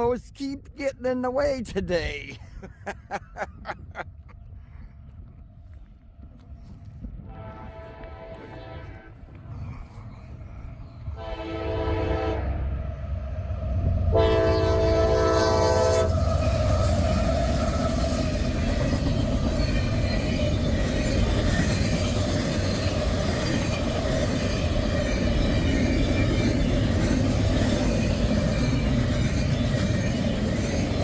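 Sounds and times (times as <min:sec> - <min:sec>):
train passing rumble: 0:01.6 - 0:31.0
locomotive horn: 0:07.2 - 0:09.4, 0:11.2 - 0:12.6, 0:14.1 - 0:16.1.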